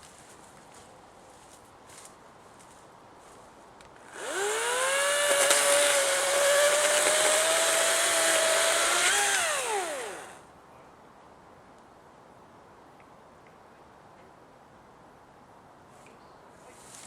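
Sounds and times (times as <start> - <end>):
electric chainsaw whining: 4.0 - 10.4.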